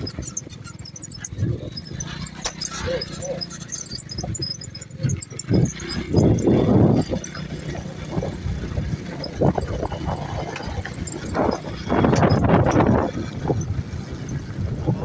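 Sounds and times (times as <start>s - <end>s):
vehicle ride rumble: 0.0s - 15.0s
wind on microphone: 5.0s - 15.0s.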